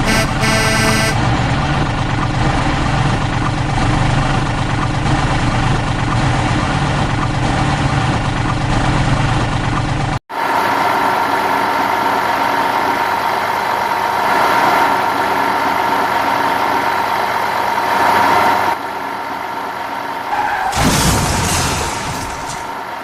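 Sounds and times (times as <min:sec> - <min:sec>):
vehicle engine idling: 0:00.0 - 0:14.5.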